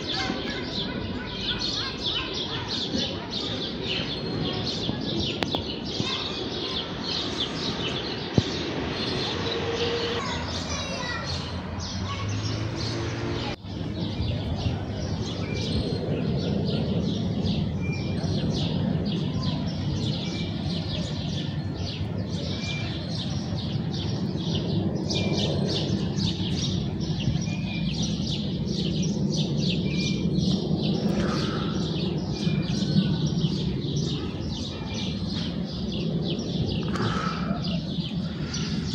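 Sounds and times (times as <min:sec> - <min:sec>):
sparrows chirping: 0:00.0 - 0:38.9.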